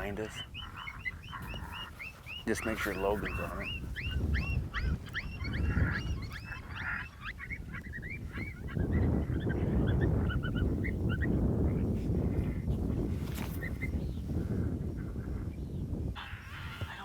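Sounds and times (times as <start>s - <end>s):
coyote yipping: 0.0s - 12.6s, 16.2s - 17.0s
wind rumble on microphone: 0.0s - 17.0s.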